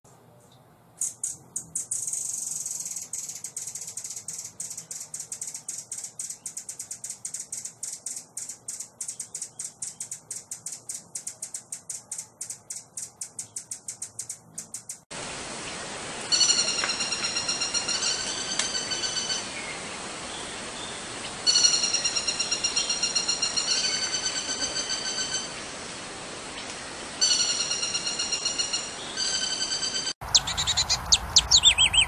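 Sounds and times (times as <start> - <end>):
background hiss: 0.1 - 29.4
bird whistled song: 1.0 - 15.0, 27.2 - 32.0.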